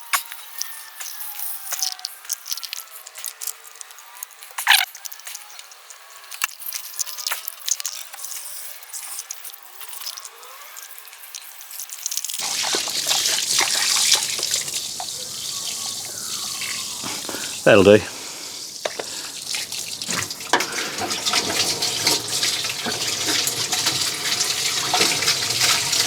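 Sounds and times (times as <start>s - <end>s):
water dripping and trickling: 9.2s - 26.0s
running water splashing: 12.0s - 26.0s.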